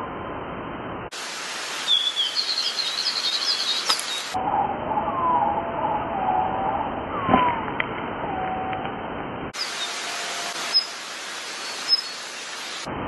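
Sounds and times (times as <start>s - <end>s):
small birds chirping: 1.7s - 4.4s, 9.6s - 12.9s.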